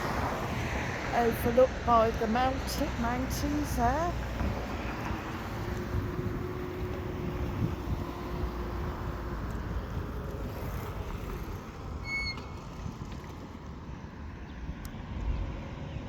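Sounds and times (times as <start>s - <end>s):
traffic rumble: 0.0s - 16.0s
motor droning: 3.4s - 12.5s.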